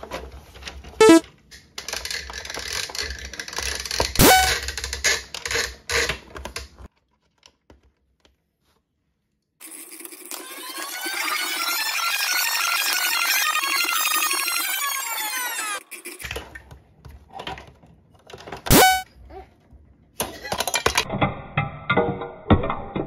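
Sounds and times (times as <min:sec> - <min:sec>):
plastic toy parts rattling and clicking: 0:01.5 - 0:08.1, 0:17.4 - 0:18.7, 0:20.2 - 0:21.2.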